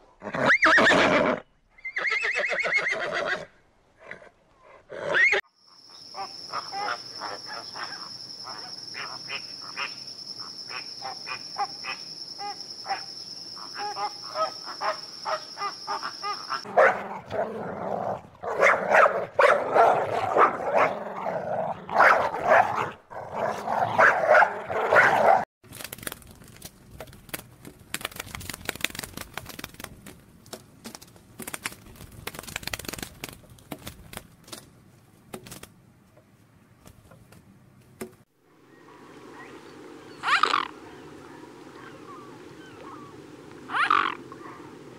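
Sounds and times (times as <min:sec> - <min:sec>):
dog barking and yipping: 0:13.8 - 0:16.0, 0:16.6 - 0:17.2, 0:18.4 - 0:21.0, 0:22.0 - 0:23.0, 0:23.9 - 0:25.4.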